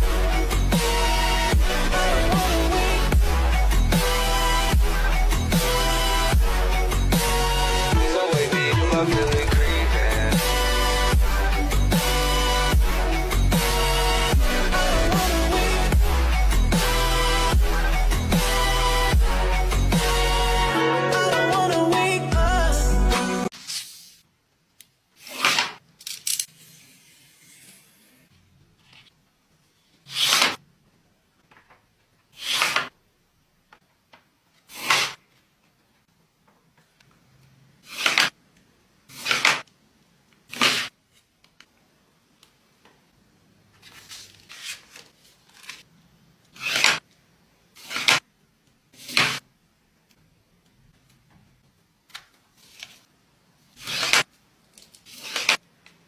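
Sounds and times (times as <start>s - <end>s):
paper rustling: 23.5s - 24.2s, 28.8s - 30.6s, 43.7s - 45.9s, 52.1s - 53.1s, 53.7s - 56.0s.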